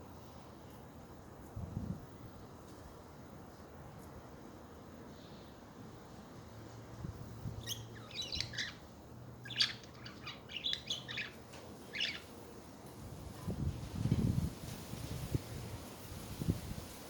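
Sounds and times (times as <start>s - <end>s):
budgerigars chattering: 7.6s - 8.8s, 9.4s - 12.3s.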